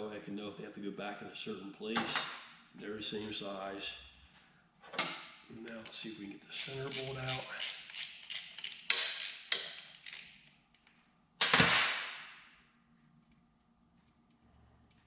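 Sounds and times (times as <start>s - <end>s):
ratchet wrench clicking: 6.5s - 10.4s.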